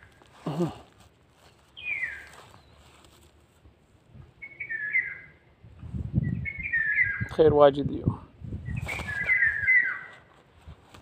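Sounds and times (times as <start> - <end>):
bird whistling falling phrases: 1.8 - 2.3, 4.4 - 5.4, 6.2 - 7.3, 8.6 - 10.3.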